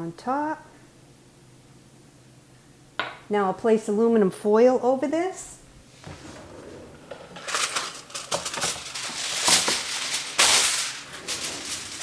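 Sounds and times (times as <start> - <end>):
aluminum foil crinkling: 7.4 - 12.0
loud foil rustles: 7.4 - 12.0.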